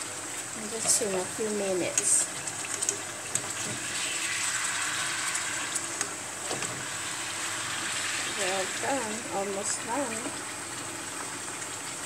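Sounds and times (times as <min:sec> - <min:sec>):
fish sizzling in a frying pan: 0:00.0 - 0:12.0.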